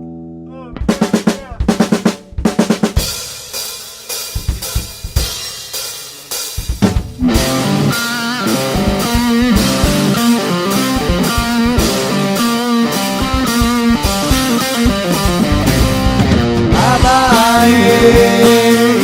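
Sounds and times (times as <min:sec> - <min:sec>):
bass guitar: 0:00.0 - 0:03.2, 0:06.6 - 0:19.0
steady drum beat: 0:00.8 - 0:19.0
electric guitar riff: 0:07.1 - 0:19.0.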